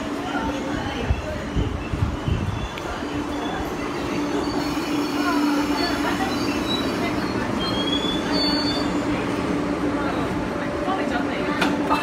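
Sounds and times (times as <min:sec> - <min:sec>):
electric train humming: 0:00.0 - 0:12.0
faint wheel squeals: 0:01.2 - 0:09.1.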